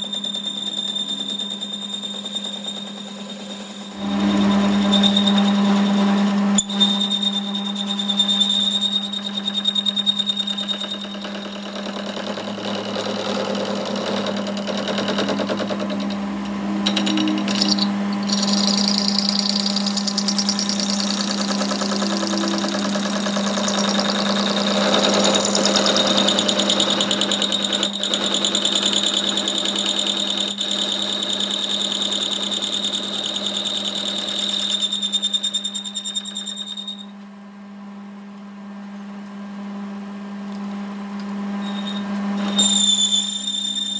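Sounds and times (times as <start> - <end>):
workshop machine humming and rattling: 0.0 - 33.3.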